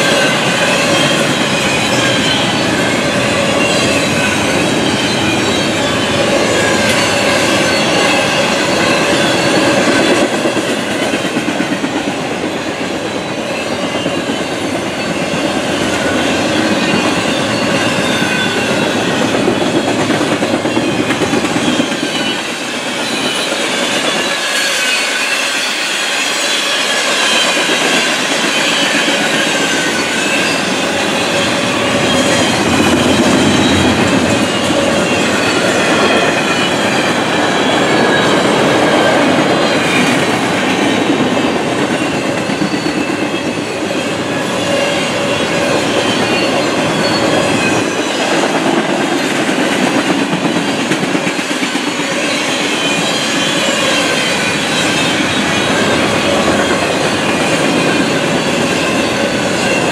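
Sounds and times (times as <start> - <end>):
train wheels rumbling and clattering: 0.0 - 59.9.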